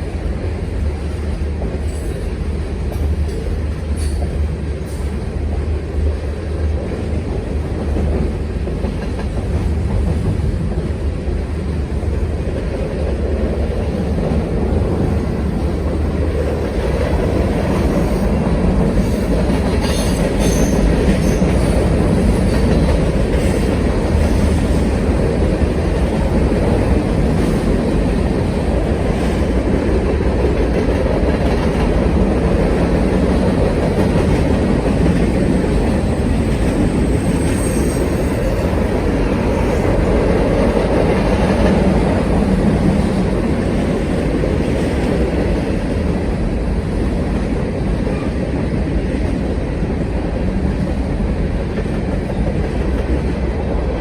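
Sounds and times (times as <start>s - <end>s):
freight train wheels rumbling: 0.0s - 54.0s
faint wheel squeal: 37.0s - 38.6s.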